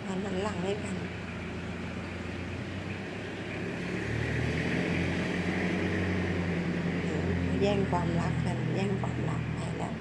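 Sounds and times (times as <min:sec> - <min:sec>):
low engine-like hum: 0:00.0 - 0:04.0, 0:05.3 - 0:10.0.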